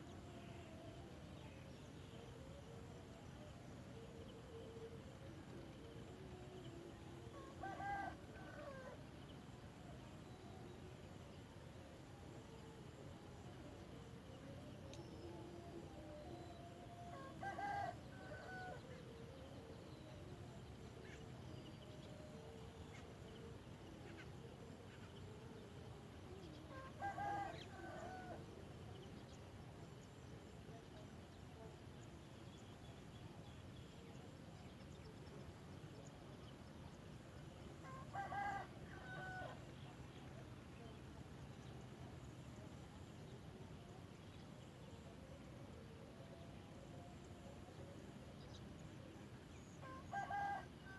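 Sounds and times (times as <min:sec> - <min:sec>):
rooster crowing: 0:37.9 - 0:39.6, 0:49.8 - 0:50.9.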